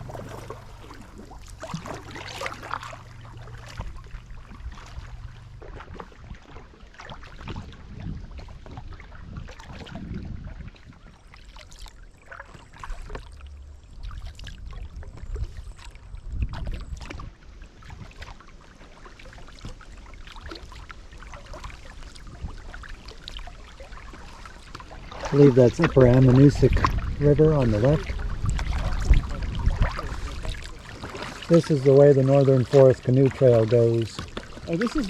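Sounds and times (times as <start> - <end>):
low rumble: 0.0 - 6.5, 24.7 - 35.0
paddle splashing in water: 0.0 - 35.0.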